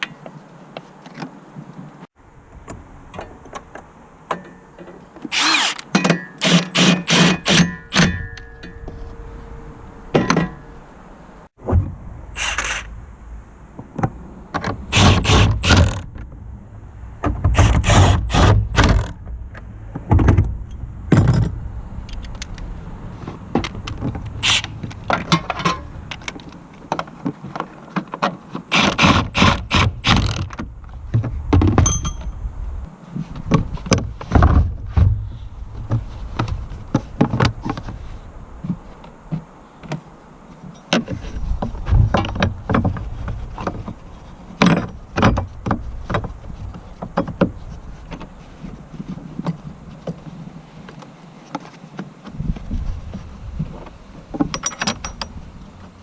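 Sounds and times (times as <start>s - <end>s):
metal tools and car parts clanking: 4.3s - 11.0s, 24.4s - 26.4s, 31.8s - 32.5s, 54.4s - 55.4s.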